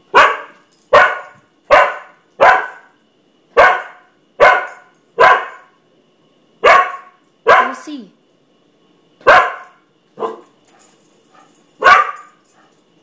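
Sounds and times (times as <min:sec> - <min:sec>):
dog barking: 0:00.1 - 0:02.9, 0:03.6 - 0:05.7, 0:06.6 - 0:07.8, 0:09.2 - 0:10.5, 0:11.8 - 0:12.4.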